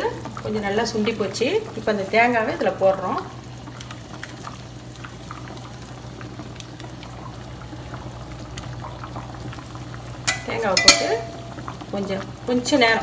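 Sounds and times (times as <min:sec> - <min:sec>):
curry bubbling in a pan: 0:00.0 - 0:13.0.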